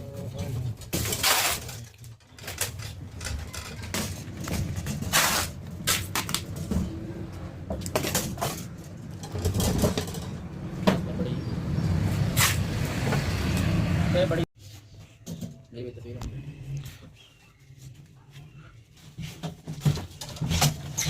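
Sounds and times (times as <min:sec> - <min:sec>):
short scraping noises: 0:05.0 - 0:06.1, 0:12.3 - 0:12.7.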